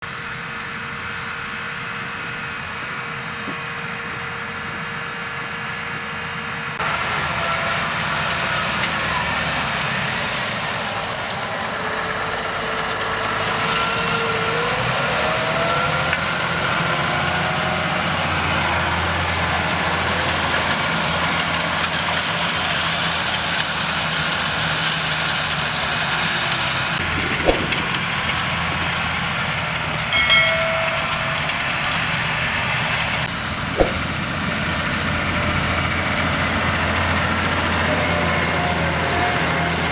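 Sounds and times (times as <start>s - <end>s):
tractor engine running: 6.8s - 39.8s
sharp knock: 33.8s - 34.1s.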